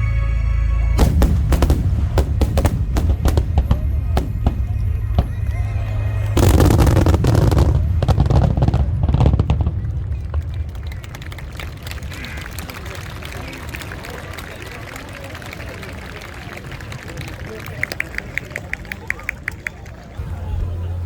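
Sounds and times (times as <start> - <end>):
music: 0.0 - 9.4
deep rumble: 0.0 - 12.4
fireworks bursting: 1.0 - 13.3.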